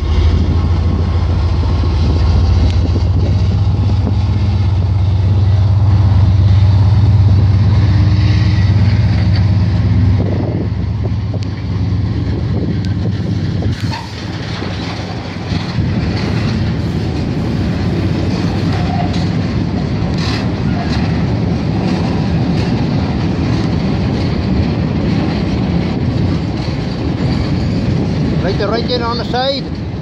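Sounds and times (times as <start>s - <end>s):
wagons rumbling on rails: 0.0s - 30.0s
wheels clacking over track: 11.3s - 30.0s.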